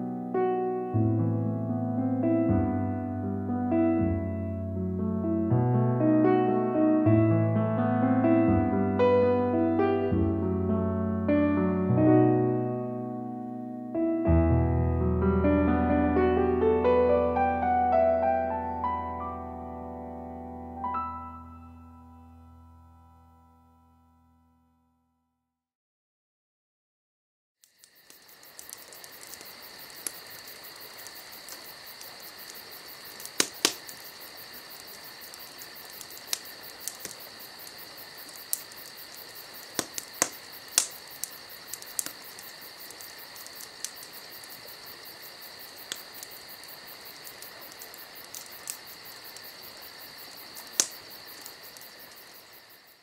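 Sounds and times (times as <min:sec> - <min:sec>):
wood fire crackling: 0:27.6 - 0:53.0
steady hiss: 0:27.7 - 0:53.0
sharp pops: 0:33.2 - 0:34.0, 0:34.8 - 0:44.1, 0:50.6 - 0:51.9.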